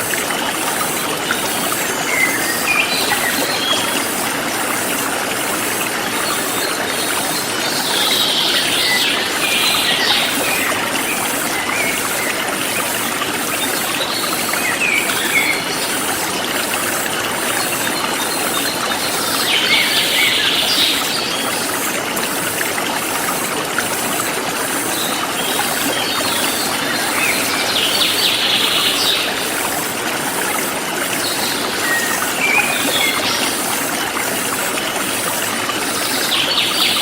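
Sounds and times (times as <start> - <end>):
forest stream flowing: 0.0 - 37.0.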